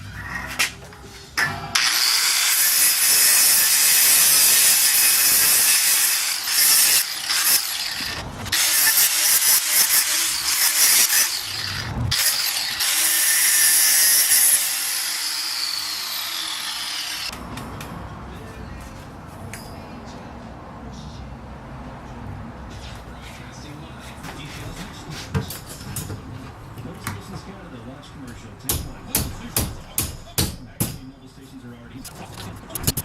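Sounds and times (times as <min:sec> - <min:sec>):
power tool cutting: 0:01.7 - 0:17.3.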